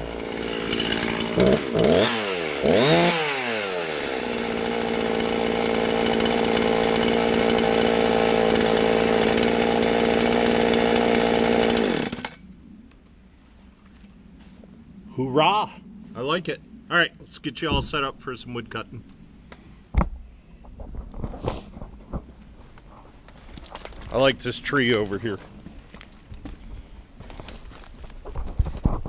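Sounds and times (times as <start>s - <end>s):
chainsaw revving and running: 0.0s - 12.4s.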